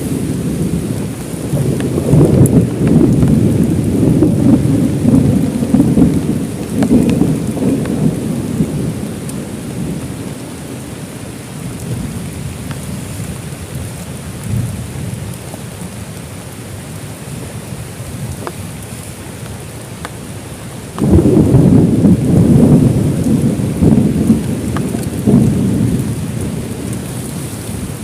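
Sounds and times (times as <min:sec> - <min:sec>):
thunder rumbling: 0:00.0 - 0:13.8, 0:21.0 - 0:28.0
heavy rain: 0:00.0 - 0:28.0
raindrop ticks: 0:01.2 - 0:10.5, 0:11.8 - 0:16.5, 0:18.3 - 0:20.2, 0:20.9 - 0:27.8.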